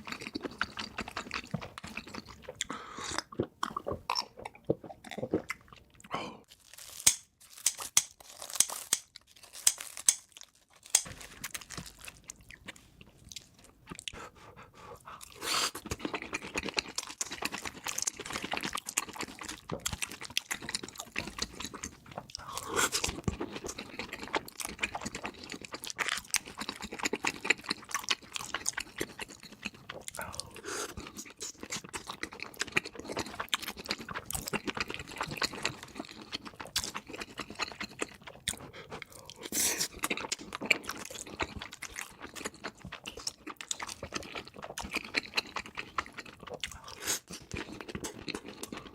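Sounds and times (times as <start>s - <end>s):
wet chewing: 15.0s - 48.9s.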